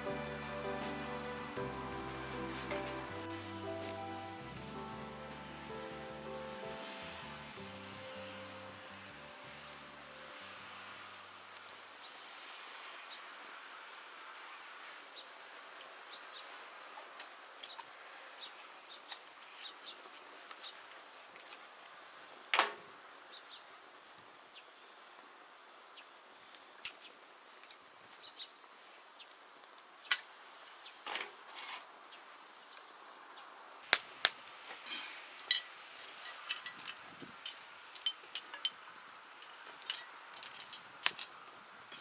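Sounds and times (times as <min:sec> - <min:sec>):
wood fire crackling: 0:00.0 - 0:13.5, 0:33.6 - 0:42.0.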